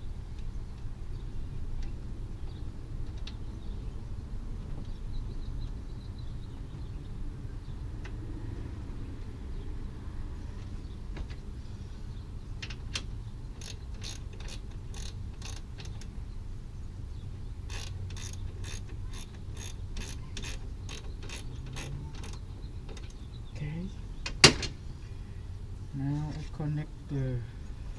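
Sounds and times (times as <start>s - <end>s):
ratchet wrench clicking: 13.6s - 16.0s, 17.7s - 22.4s.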